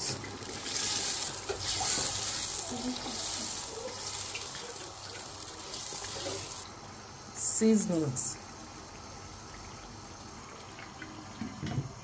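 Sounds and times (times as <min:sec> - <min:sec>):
vegetables sizzling in hot oil: 0:00.0 - 0:06.7.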